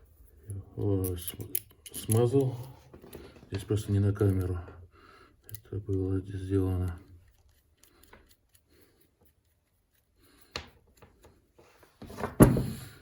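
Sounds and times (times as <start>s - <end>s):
metal parts clicking: 0.4s - 2.8s, 5.4s - 10.0s.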